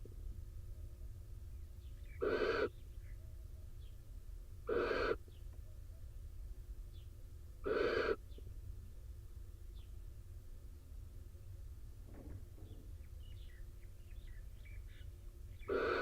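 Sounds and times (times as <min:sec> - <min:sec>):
barn owl calls: 0:01.8 - 0:03.7, 0:04.6 - 0:05.4, 0:07.6 - 0:08.5, 0:12.7 - 0:16.0.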